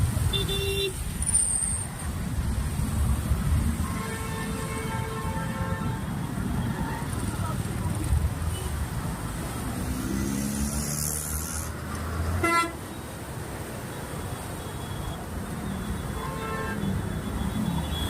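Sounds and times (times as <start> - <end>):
vehicle engines rumbling: 0.0 - 18.0
car horn beep: 0.2 - 1.0, 12.4 - 12.8.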